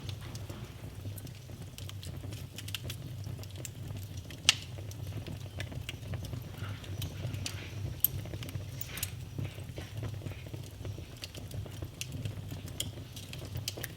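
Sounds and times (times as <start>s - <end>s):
fire popping: 0.0s - 13.9s
wood fire crackling: 0.0s - 13.9s.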